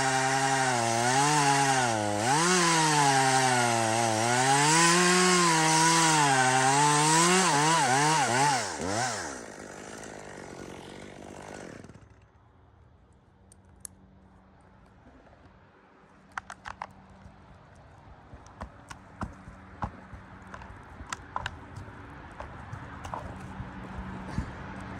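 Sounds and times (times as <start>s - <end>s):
chainsaw cutting wood: 0.0s - 12.3s, 18.5s - 24.8s
sharp clicks and taps: 16.3s - 23.6s.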